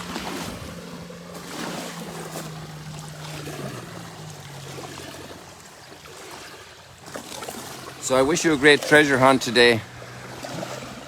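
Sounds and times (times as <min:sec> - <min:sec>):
low motor hum: 0:00.0 - 0:11.0
water lapping on shore: 0:00.0 - 0:11.0.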